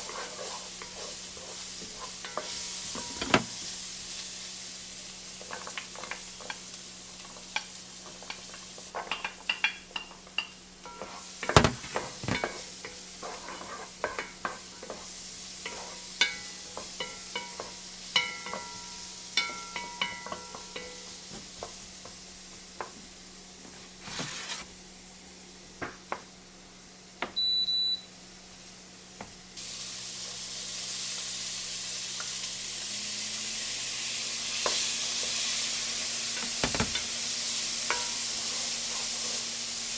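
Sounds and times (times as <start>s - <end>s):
loud steady sizzling hiss: 0.0s - 27.2s, 27.9s - 39.9s
faint sizzle: 0.0s - 39.9s
utensils clinking and scraping: 0.1s - 3.7s, 10.9s - 12.7s, 36.4s - 37.2s
appliance electronic beep: 27.4s - 28.1s.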